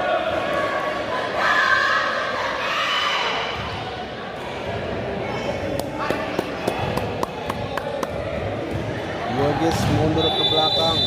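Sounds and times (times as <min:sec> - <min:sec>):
crowd noise in a large hall: 0:00.0 - 0:11.0
sharp claps or knocks: 0:05.8 - 0:08.2.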